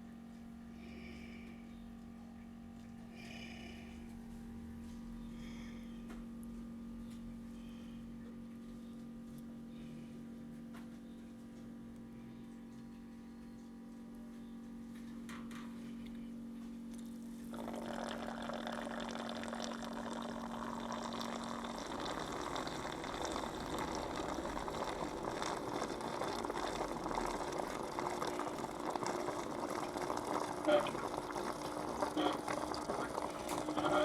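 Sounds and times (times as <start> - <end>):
small pump humming: 0.0 - 34.0
water flowing and gurgling: 17.6 - 34.0.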